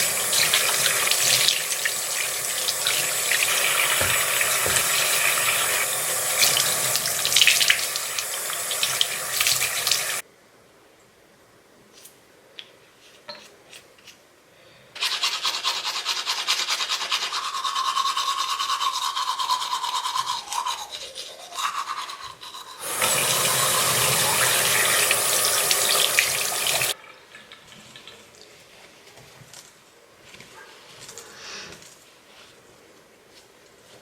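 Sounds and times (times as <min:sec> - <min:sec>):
sink tap running: 0:00.0 - 0:10.2, 0:22.8 - 0:27.0
teeth brushing: 0:15.0 - 0:22.9.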